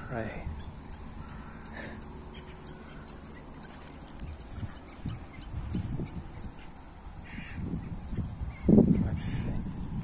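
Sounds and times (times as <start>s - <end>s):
faint high bird chirps: 0.0s - 9.2s.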